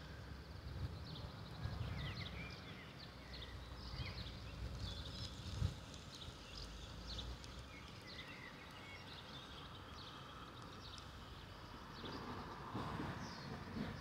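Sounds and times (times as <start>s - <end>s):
birds chirping: 2.0s - 12.6s.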